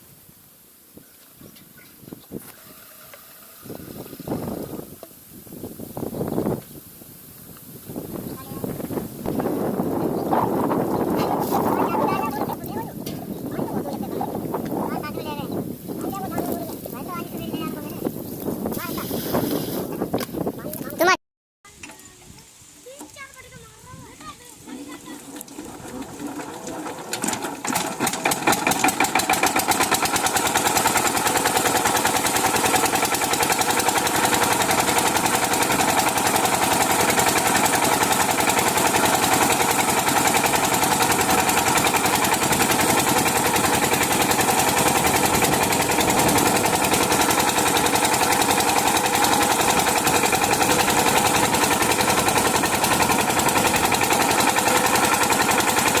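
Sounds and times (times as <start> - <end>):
diesel pump engine running: 8.0 - 19.8, 24.6 - 56.0.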